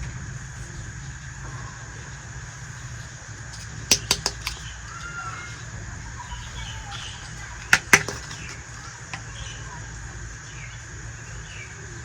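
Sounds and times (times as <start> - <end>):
plastic toy pieces clicking: 3.6 - 5.2, 6.9 - 9.2.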